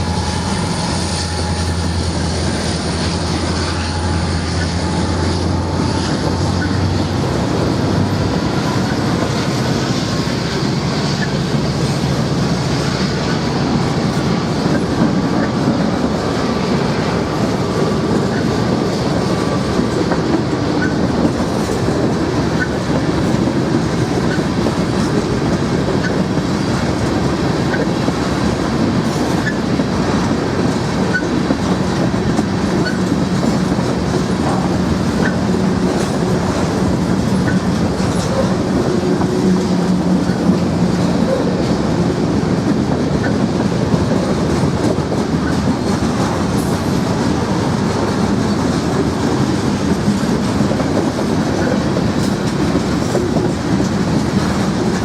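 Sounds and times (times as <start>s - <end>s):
low train engine tone: 0.0s - 55.0s
train wheels rumbling on rail: 0.0s - 55.0s.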